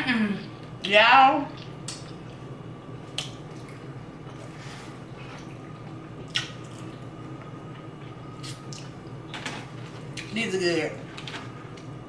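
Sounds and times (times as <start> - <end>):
sharp mouth smacks: 1.8 - 2.1, 6.3 - 6.6.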